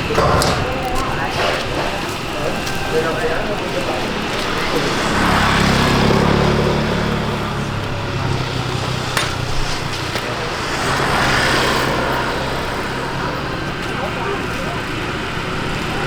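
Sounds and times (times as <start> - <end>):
road traffic noise: 0.0 - 16.0
vehicle engine running: 0.0 - 16.0.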